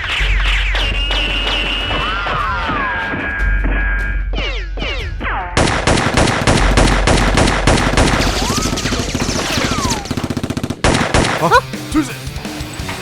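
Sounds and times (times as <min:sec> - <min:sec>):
machine-gun fire: 0:05.6 - 0:09.4.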